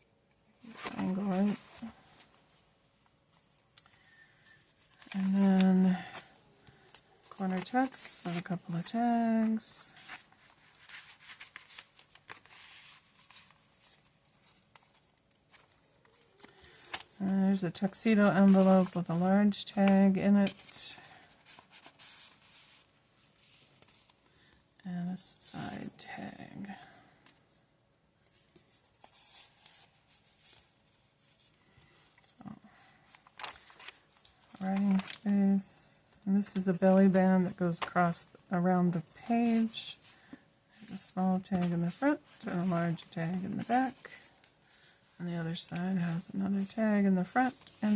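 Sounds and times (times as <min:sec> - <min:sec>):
paper pages rustling: 0:00.6 - 0:02.6, 0:03.3 - 0:24.2, 0:28.2 - 0:32.2, 0:32.9 - 0:35.3, 0:39.1 - 0:45.0, 0:45.6 - 0:47.9.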